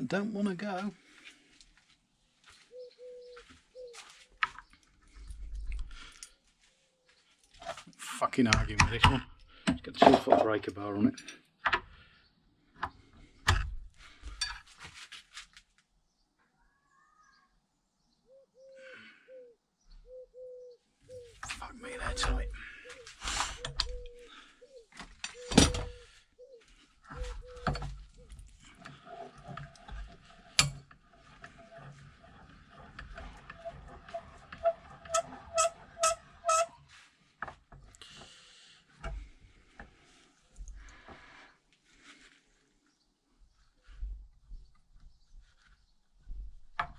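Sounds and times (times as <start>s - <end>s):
pigeon cooing: 2.7s - 4.1s, 18.3s - 28.4s.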